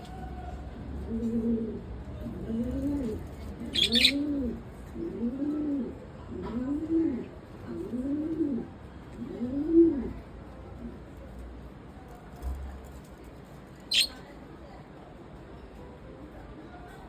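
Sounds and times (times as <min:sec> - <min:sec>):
bird cooing: 0:01.0 - 0:10.2.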